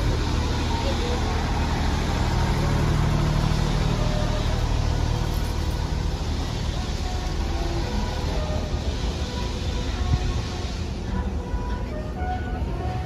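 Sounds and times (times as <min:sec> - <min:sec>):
train carriages rumbling past: 0:00.0 - 0:13.0.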